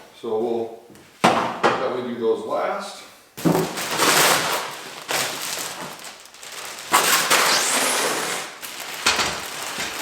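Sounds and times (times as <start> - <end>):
packaging rustling: 3.4 - 10.0.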